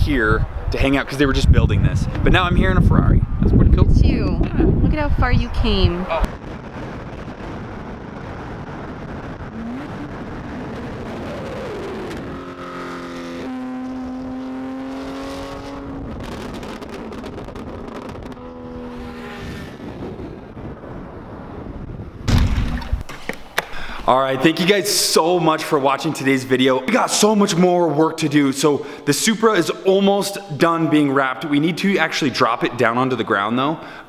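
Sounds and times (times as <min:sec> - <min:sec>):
road noise: 0:00.0 - 0:34.0
car engines: 0:05.2 - 0:22.0.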